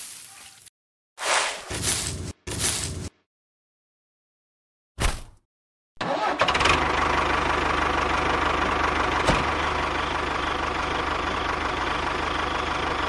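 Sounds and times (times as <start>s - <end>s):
tractor engine starting and running: 6.0s - 13.0s.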